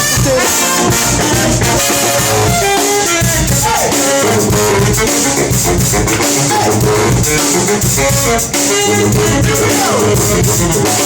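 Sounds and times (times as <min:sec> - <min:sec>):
drum kit steady beat: 0:00.0 - 0:11.0
horns playing up-tempo tune: 0:00.0 - 0:11.0.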